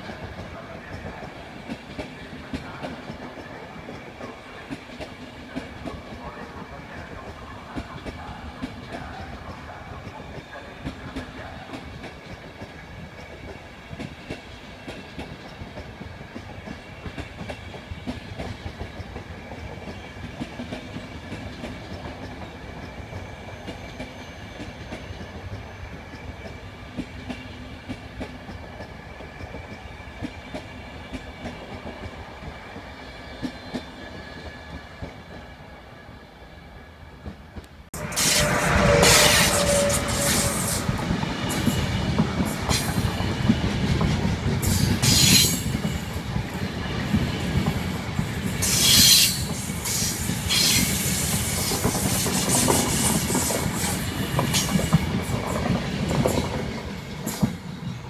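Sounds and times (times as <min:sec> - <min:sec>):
passenger train rolling by: 0:00.0 - 0:58.0
high wheel squeals: 0:38.0 - 0:42.0.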